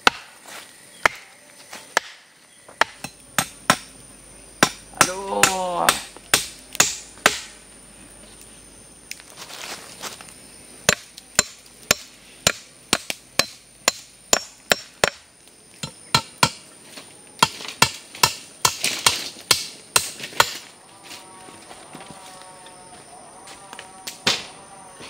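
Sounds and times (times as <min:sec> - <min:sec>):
sharp chopping blows: 0:04.6 - 0:07.6.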